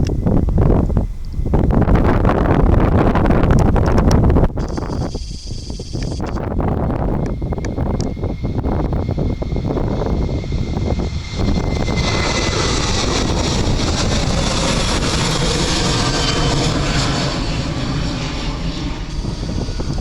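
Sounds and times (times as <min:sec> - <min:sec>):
jet engines roaring: 0:00.0 - 0:20.0
faint falling whine: 0:04.6 - 0:20.0.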